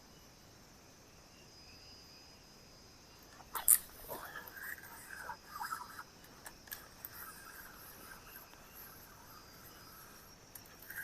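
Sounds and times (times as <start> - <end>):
crickets chirring: 0.0 - 11.0
faint clicks: 3.2 - 11.0.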